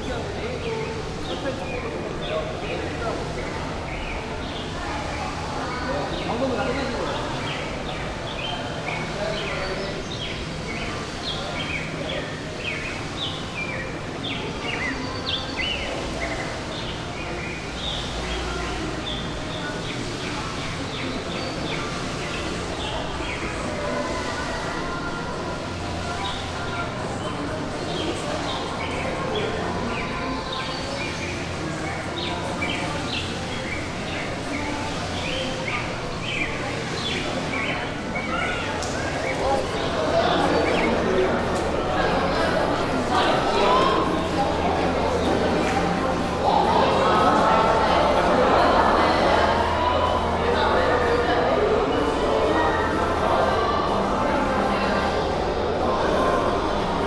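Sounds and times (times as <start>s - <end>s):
birds chirping: 0.0s - 57.0s
steady background hum: 0.0s - 57.0s.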